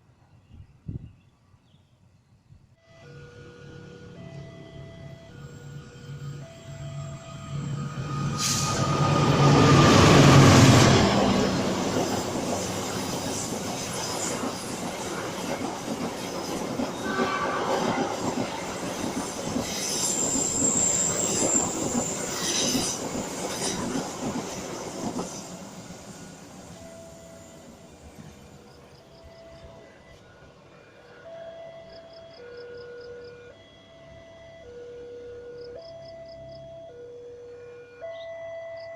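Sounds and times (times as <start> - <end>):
diesel locomotive passing: 2.9 - 38.0
train wheel clatter: 8.3 - 26.5
high-pitched wheel squeals: 19.7 - 23.0.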